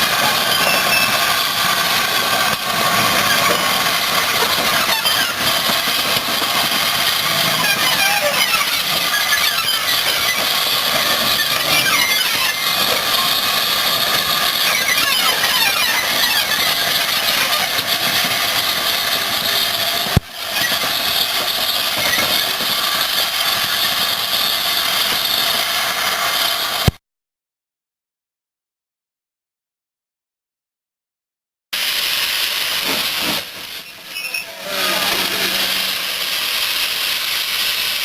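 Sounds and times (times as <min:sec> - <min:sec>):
high-pitched squealing: 0:00.0 - 0:25.5, 0:33.0 - 0:37.6
steam hissing: 0:00.0 - 0:26.9, 0:31.8 - 0:38.0.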